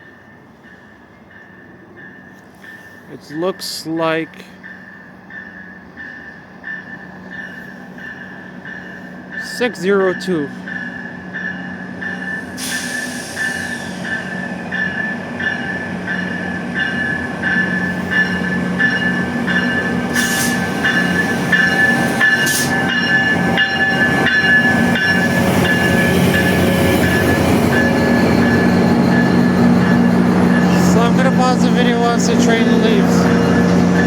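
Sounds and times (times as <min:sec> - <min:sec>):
locomotive bell ringing: 0:00.0 - 0:34.0
diesel locomotive engine running: 0:08.6 - 0:34.0.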